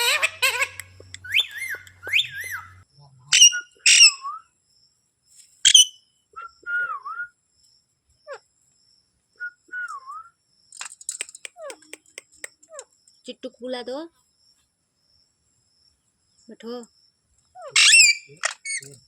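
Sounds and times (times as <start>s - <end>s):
parrot whistling: 0.0s - 2.8s, 3.4s - 4.4s, 17.8s - 18.8s
parrot sharp calls: 0.0s - 4.2s, 5.7s - 5.9s, 17.6s - 18.9s.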